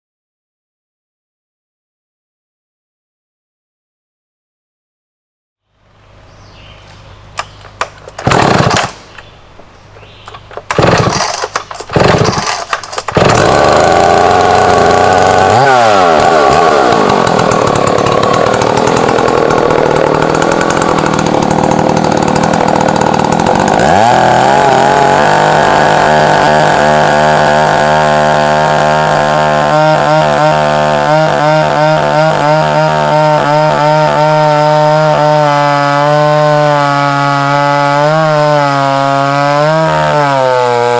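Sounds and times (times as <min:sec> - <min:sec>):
chainsaw starting and running: 0:07.4 - 0:09.3, 0:10.3 - 0:40.9.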